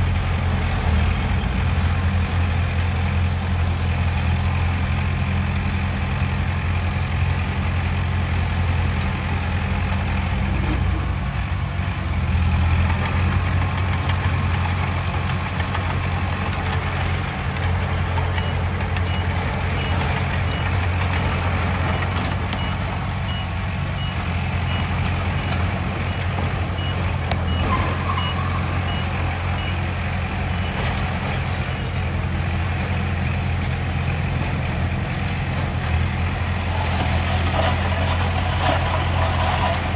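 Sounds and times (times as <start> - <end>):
diesel machinery engine drone: 0.0 - 39.9
reversing alarm beeping: 21.9 - 32.0.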